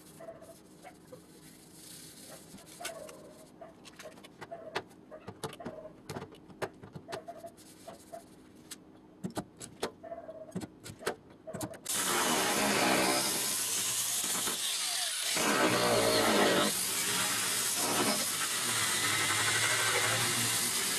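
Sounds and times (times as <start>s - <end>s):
power tool running: 11.9s - 20.9s.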